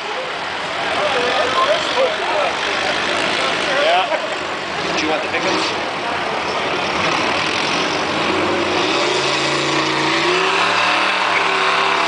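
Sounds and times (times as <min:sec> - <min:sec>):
tractor engine revving under load: 0:06.9 - 0:12.0.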